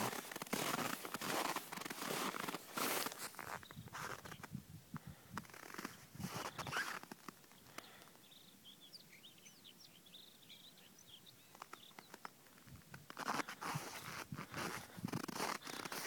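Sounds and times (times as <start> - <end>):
crunching noises: 0.0 - 4.4, 11.5 - 16.0
small birds chirping: 0.0 - 16.0.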